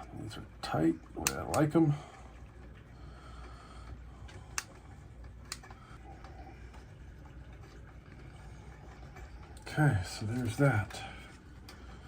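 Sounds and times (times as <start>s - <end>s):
low steady hum: 0.0s - 12.0s
faint sharp clicks of small parts: 3.4s - 6.8s.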